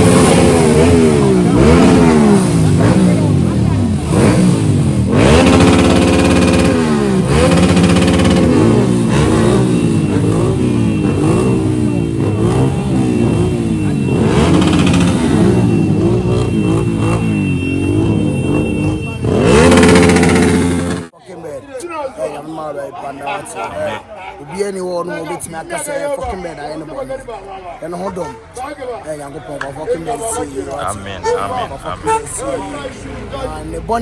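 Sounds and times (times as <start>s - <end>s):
motorcycle engines revving: 0.0s - 21.2s.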